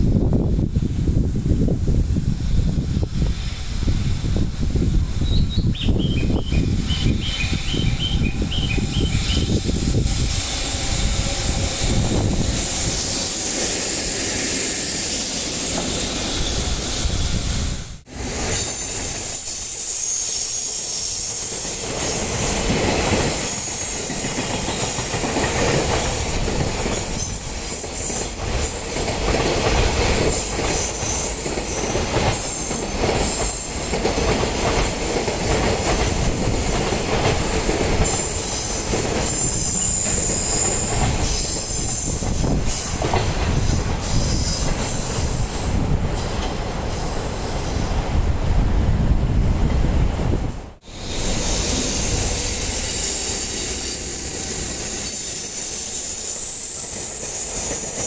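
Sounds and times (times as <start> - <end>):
high wheel squeal: 5.4 - 17.6, 18.4 - 22.6, 23.3 - 25.2, 26.0 - 29.2, 37.4 - 45.9, 50.9 - 58.0
train wheels clattering on rails: 18.4 - 48.0.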